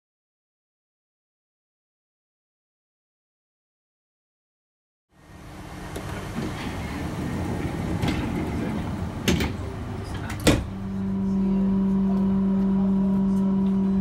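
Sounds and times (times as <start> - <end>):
steady low hum: 5.1 - 14.0
train rushing rumble: 5.2 - 11.8.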